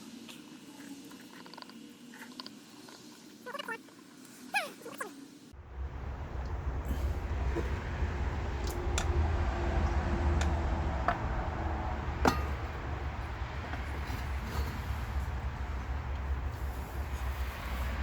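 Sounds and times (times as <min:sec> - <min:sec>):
steady low rumble: 0:05.6 - 0:18.0
metal tools clinking: 0:11.9 - 0:17.0.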